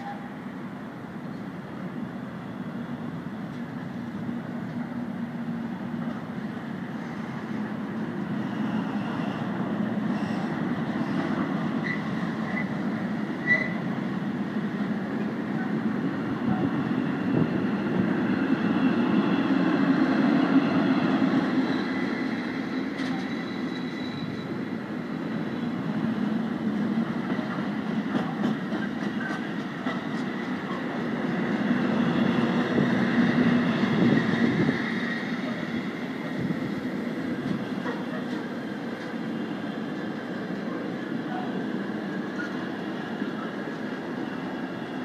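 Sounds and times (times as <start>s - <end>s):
freight wagons rumbling on rails: 3.5s - 45.0s
faint high wheel squeals: 13.4s - 13.8s, 21.4s - 24.7s.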